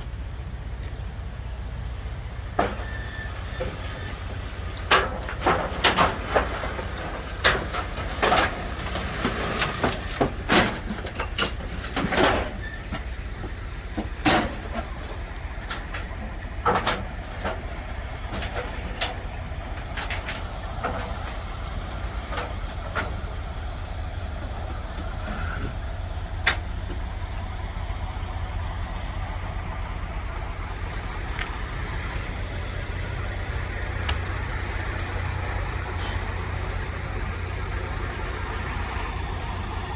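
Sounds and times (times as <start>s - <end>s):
vehicle engine idling: 0.0s - 39.9s
metallic clanks and knocks: 4.8s - 27.6s.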